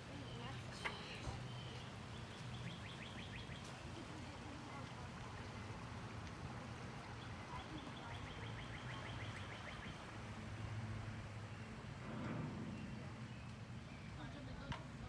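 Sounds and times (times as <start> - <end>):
faint low rumble: 10.6 - 15.0.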